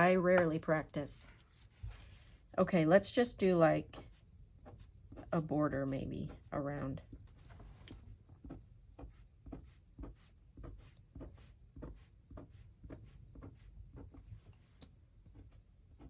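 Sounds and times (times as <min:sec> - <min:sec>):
pen scratching on paper: 0:03.8 - 0:07.1, 0:08.4 - 0:16.0.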